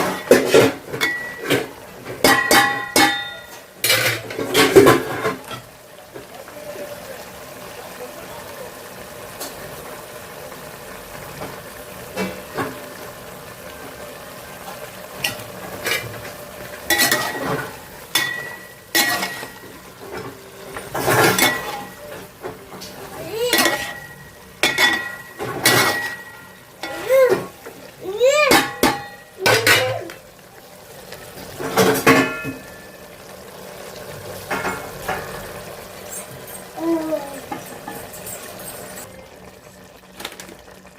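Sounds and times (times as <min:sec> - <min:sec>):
metal spoon stirring in pot: 0:16.9 - 0:22.1, 0:23.5 - 0:27.5, 0:37.5 - 0:39.1.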